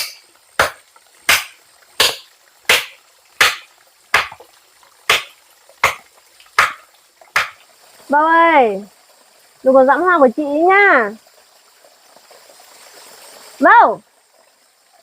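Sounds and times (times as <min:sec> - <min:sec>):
chopping strokes: 0:00.0 - 0:04.4, 0:05.1 - 0:06.0, 0:06.6 - 0:07.6.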